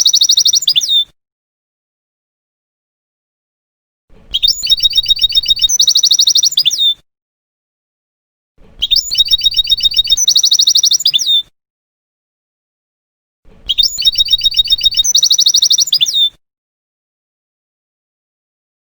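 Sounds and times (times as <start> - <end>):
finch singing: 0.0 - 1.0, 4.3 - 7.0, 8.8 - 11.5, 13.7 - 16.4.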